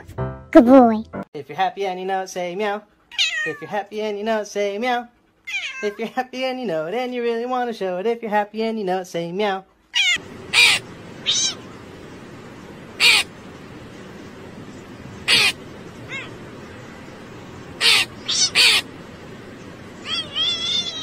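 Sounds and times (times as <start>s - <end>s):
background hiss: 1.5s - 21.0s
crow cawing: 10.0s - 11.7s, 12.9s - 13.4s, 15.2s - 16.4s, 17.7s - 19.0s.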